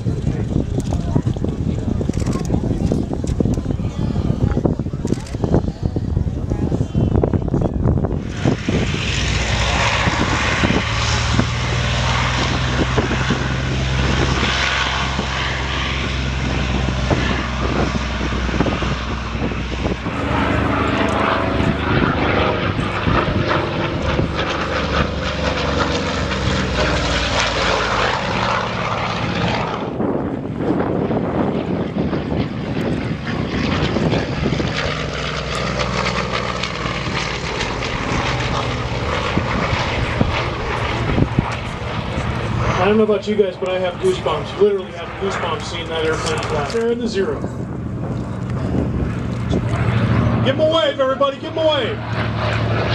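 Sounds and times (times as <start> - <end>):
propeller aircraft engine drone: 0.0 - 52.9.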